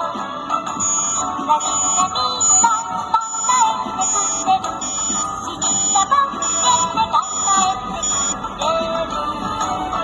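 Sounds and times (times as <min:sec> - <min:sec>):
truck reverse alarm tune: 0:00.6 - 0:08.5.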